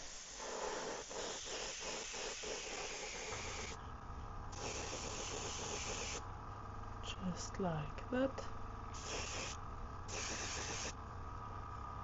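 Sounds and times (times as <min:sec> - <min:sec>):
airbrush spraying hiss: 0:00.0 - 0:03.8, 0:04.5 - 0:06.2, 0:08.9 - 0:11.0.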